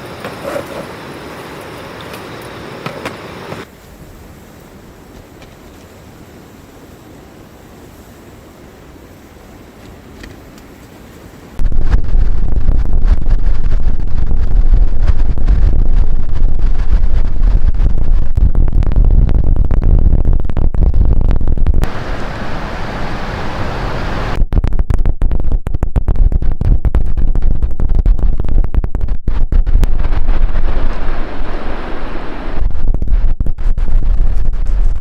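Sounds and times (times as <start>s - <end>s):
wind buffeting microphone: 9.4s - 35.0s.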